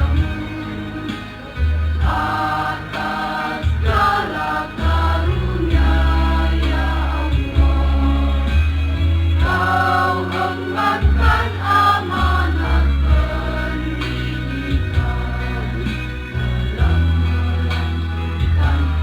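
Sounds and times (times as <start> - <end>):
choir singing in parts: 0.0 - 19.0
deep bass accompaniment: 0.0 - 19.0.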